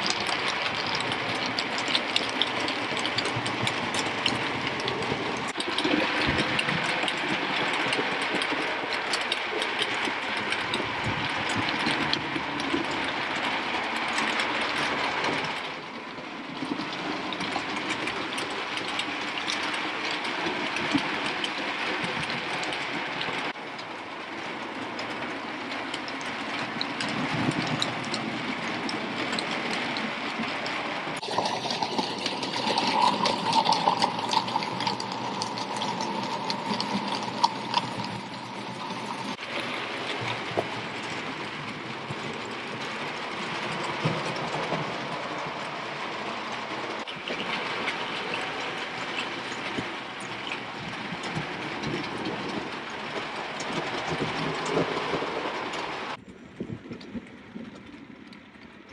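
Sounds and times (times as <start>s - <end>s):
wheels clicking over rail joints: 0.0s - 58.9s.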